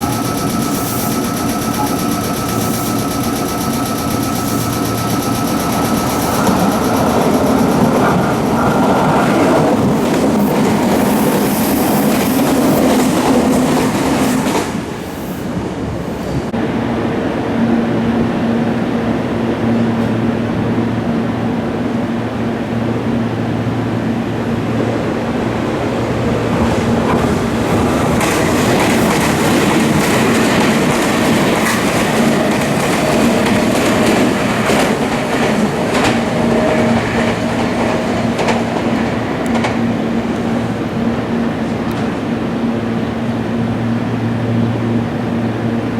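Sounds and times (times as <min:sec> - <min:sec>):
train wheels clacking: 0:00.0 - 0:15.1, 0:25.7 - 0:42.3
electric train passing at speed: 0:00.0 - 0:45.9.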